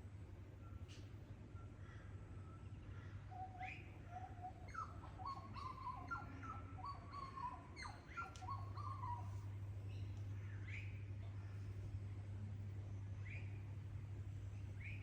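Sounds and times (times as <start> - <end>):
birds whistling and calling: 3.3 - 11.0
steady low hum: 9.2 - 15.0.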